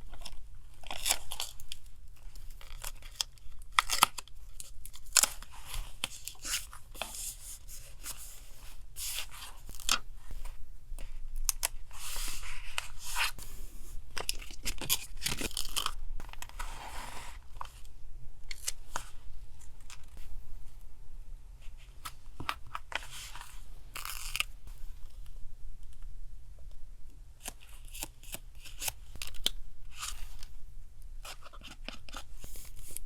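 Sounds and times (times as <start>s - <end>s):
faint low hum: 0.0s - 33.0s.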